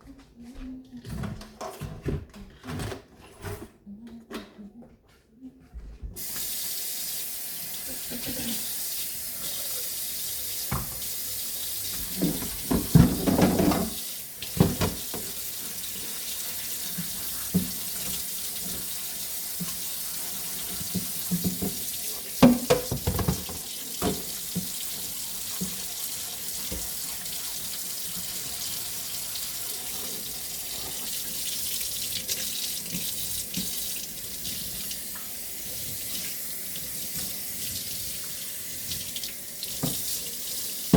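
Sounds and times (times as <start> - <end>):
tap running into sink: 10.7 - 11.1, 11.9 - 15.4, 20.6 - 24.8, 26.5 - 27.1, 38.9 - 40.2.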